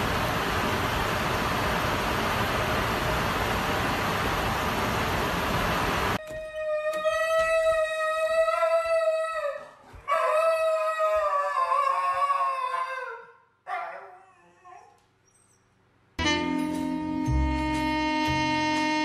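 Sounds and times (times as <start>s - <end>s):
dog howling: 6.4s - 15.0s.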